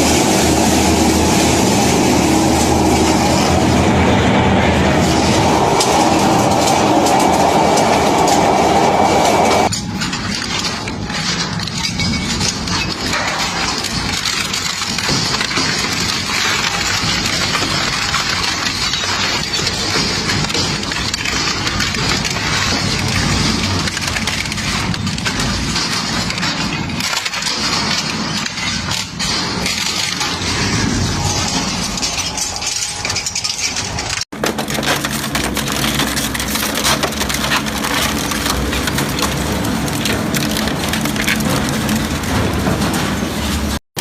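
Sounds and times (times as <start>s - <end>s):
engine hum: 0.0s - 9.7s
material crackling and grinding: 0.0s - 44.0s.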